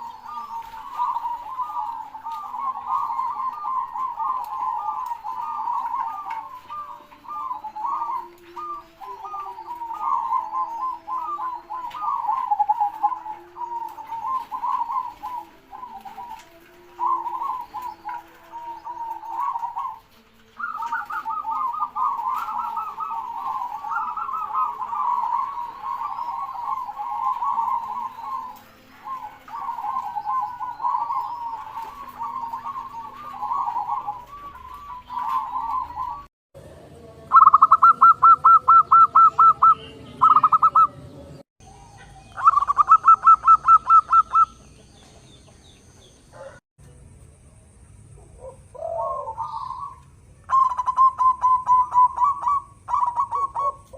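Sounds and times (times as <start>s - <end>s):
small birds chirping: 0.0s - 36.3s, 37.3s - 46.6s, 47.2s - 53.9s
doves cooing: 0.0s - 46.6s, 48.1s - 53.9s.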